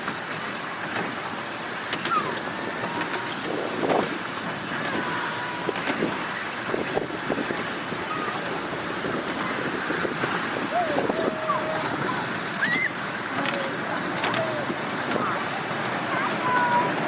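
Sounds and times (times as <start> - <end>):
miniature train rumbling on track: 0.0 - 17.0
wheels clicking over track: 0.0 - 17.0
wind on microphone: 2.2 - 12.8.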